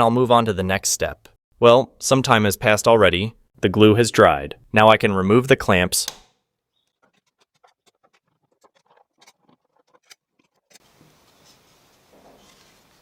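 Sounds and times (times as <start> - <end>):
clamps clicking and scraping: 6.0 - 10.8
soft hiss: 10.8 - 13.0.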